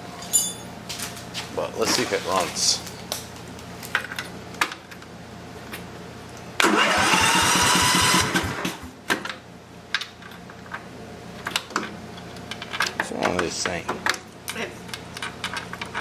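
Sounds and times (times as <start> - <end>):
starter cranking mower engine: 6.6 - 8.9.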